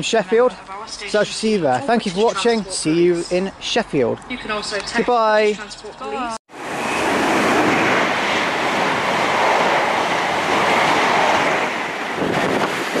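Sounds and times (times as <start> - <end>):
train wheels rushing on rails: 6.5 - 13.0.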